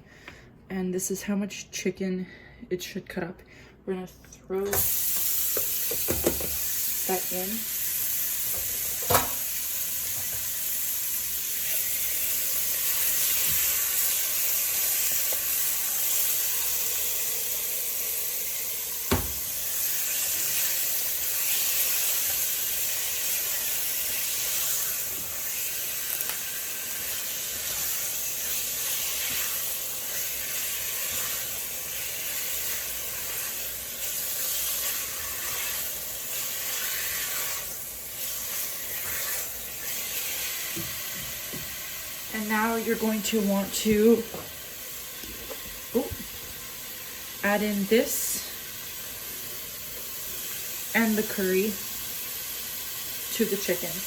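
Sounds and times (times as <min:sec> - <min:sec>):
chicken sizzling in hot oil: 0:04.8 - 0:54.0.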